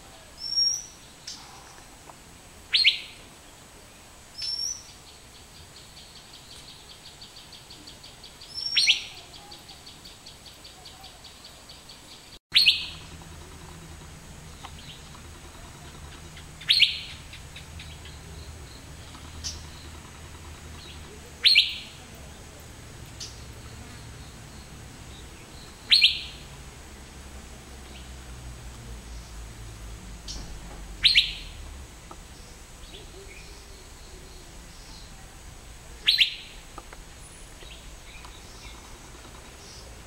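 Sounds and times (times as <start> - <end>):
bird whistling downward notes: 12.5 - 13.2, 16.6 - 17.2, 21.4 - 21.9, 25.7 - 26.4, 31.0 - 31.6, 36.0 - 36.5.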